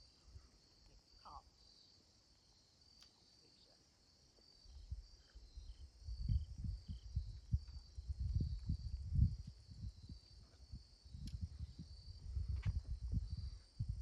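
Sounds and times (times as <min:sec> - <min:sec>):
insects chirring: 0:00.0 - 0:14.0
low rumbles and thumps: 0:11.3 - 0:14.0.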